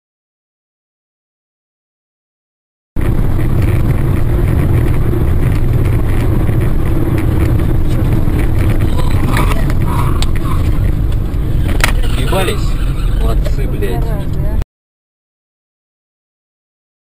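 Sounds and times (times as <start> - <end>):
car road and engine noise: 3.0 - 14.6.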